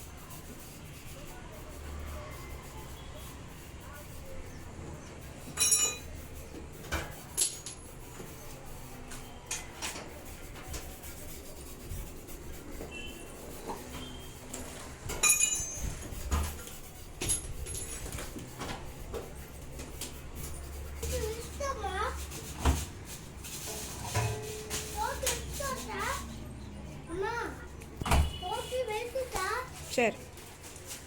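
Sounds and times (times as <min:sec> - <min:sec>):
clinks and knocks of hard objects: 0:05.6 - 0:06.1, 0:07.0 - 0:08.0, 0:15.1 - 0:15.9.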